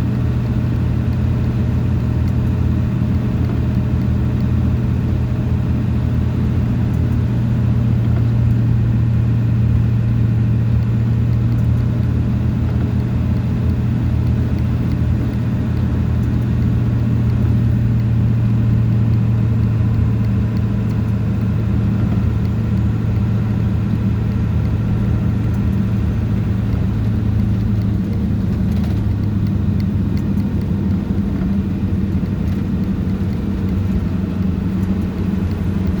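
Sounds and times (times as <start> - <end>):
road noise: 0.0 - 36.0
vehicle engine hum: 0.0 - 36.0.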